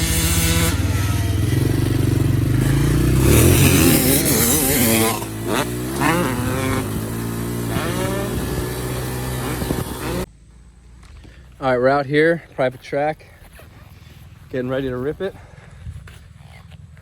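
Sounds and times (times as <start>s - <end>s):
two-stroke engine revving: 0.0s - 10.3s.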